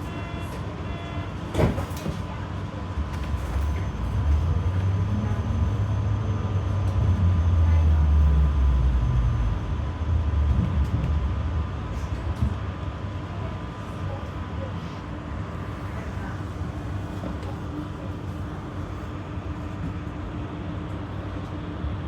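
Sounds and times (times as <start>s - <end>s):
tram wheels rumbling: 0.0s - 14.4s.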